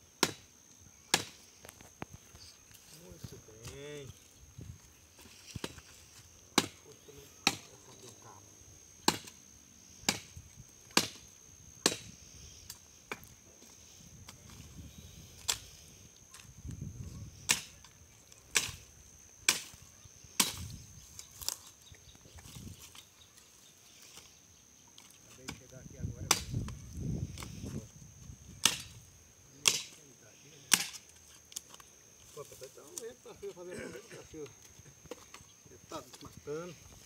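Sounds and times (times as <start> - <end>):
blade chopping wood: 0.2 - 0.4, 1.1 - 1.4, 6.6 - 6.8, 9.0 - 9.4, 10.0 - 10.3, 10.9 - 11.2, 11.8 - 12.1, 26.2 - 26.6, 28.6 - 29.0, 29.6 - 30.0, 30.7 - 31.0.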